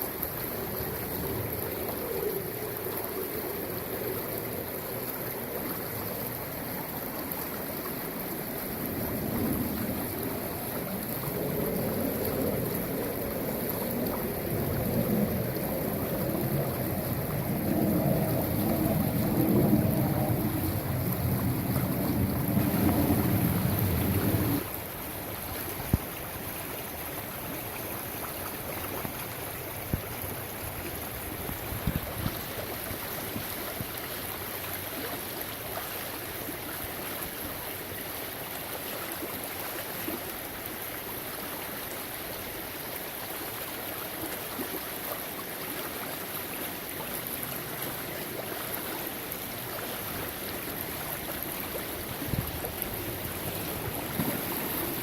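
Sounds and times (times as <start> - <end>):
creek water running: 0.0 - 55.0.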